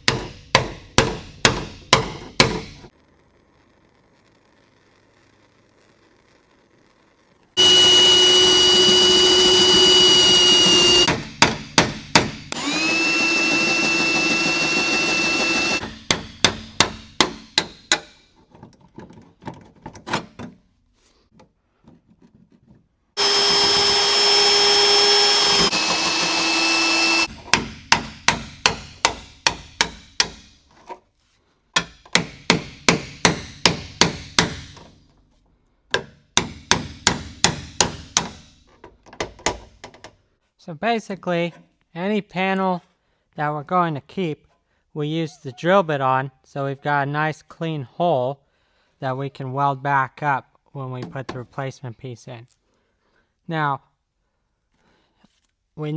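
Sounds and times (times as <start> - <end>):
drill whining through metal: 7.6 - 11.2, 12.5 - 15.9, 23.2 - 27.3.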